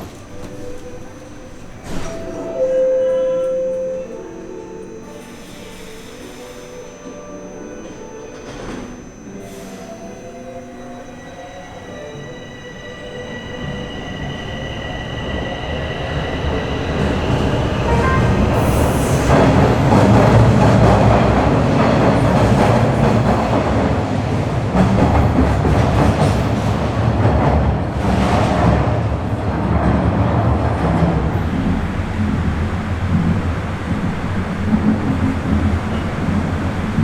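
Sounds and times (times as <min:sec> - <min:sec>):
subway train pulling away: 0:00.0 - 0:37.0
wheels rumbling on rail: 0:13.2 - 0:37.0.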